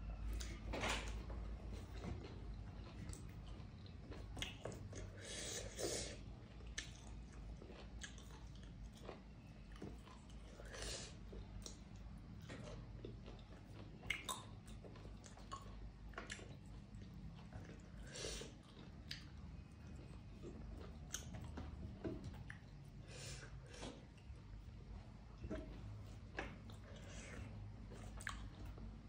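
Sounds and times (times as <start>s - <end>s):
person chewing: 1.7s - 29.0s
lip smacks: 14.0s - 14.5s.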